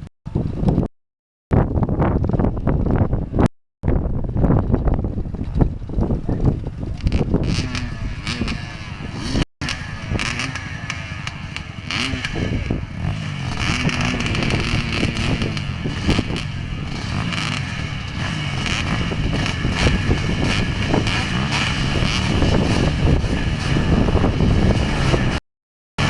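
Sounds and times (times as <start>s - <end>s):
dirt bike engine revving: 6.4s - 25.4s.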